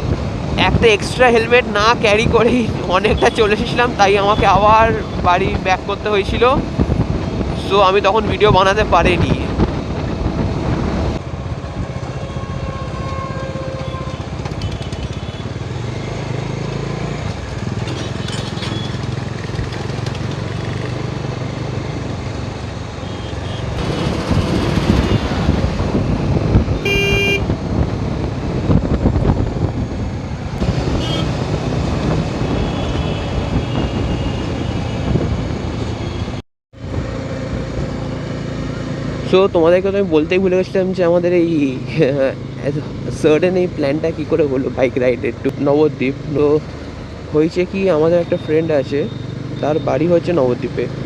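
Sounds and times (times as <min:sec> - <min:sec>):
traffic noise: 0:00.0 - 0:51.0
motorcycle engine hum: 0:09.1 - 0:51.0
vehicle horn toot: 0:12.2 - 0:15.4, 0:26.8 - 0:27.5, 0:31.0 - 0:31.3.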